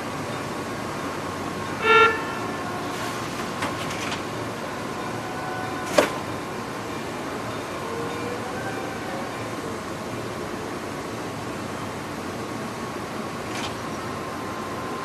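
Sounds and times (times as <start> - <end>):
electric train running slowly: 0.0 - 15.0
short train horn toot: 1.8 - 2.6.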